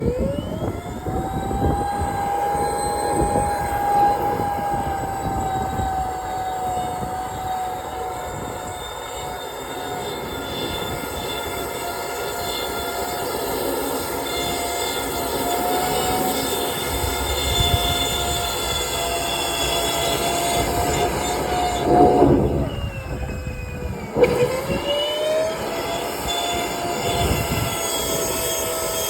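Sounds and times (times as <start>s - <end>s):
cleaning machine whine: 0.0s - 29.0s
rush of air: 20.8s - 23.4s.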